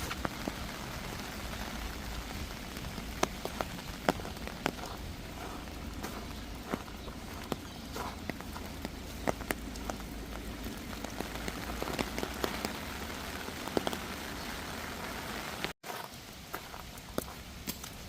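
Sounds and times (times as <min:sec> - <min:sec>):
rain falling: 0:00.0 - 0:18.0
raindrops pattering close by: 0:00.0 - 0:18.0.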